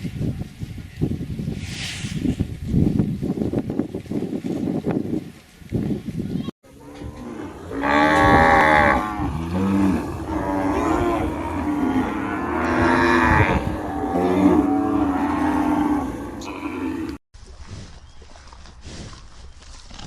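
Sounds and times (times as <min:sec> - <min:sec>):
cattle mooing: 0:06.7 - 0:17.2.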